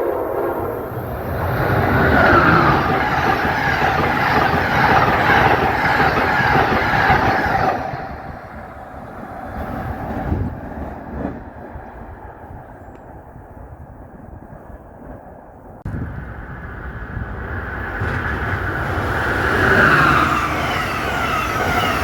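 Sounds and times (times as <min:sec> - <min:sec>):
train passing at speed: 0:00.0 - 0:22.0.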